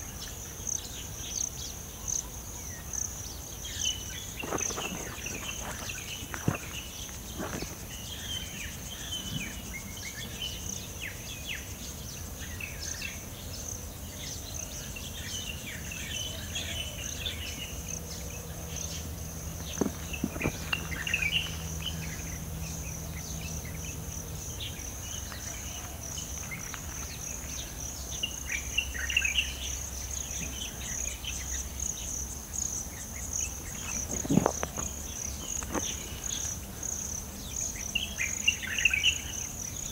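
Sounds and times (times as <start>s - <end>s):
insects buzzing: 0.0s - 39.9s
birds chirping and calling: 18.8s - 39.9s.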